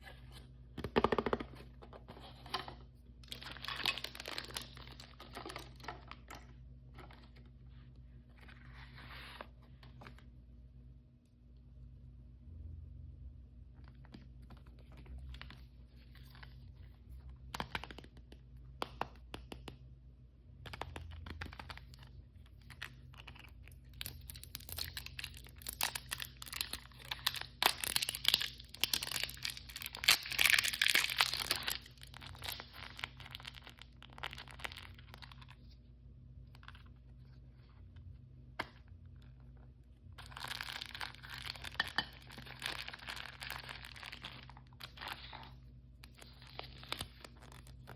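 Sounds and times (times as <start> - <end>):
toy packaging tearing and crinkling: 3.2 - 6.2, 23.8 - 35.4, 40.2 - 47.9.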